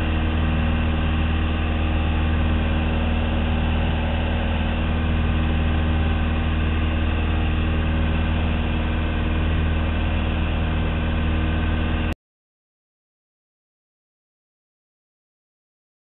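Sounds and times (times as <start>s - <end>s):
propeller plane engine droning: 0.0s - 12.2s.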